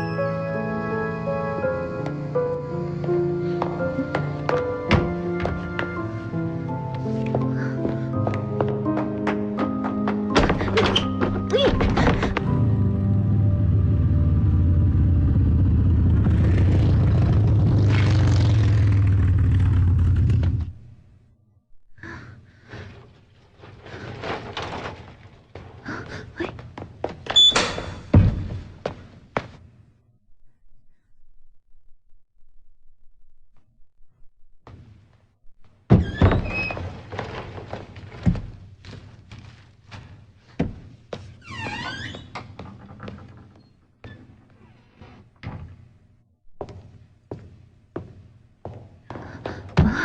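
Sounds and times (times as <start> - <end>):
low motor hum: 12.5 - 20.8.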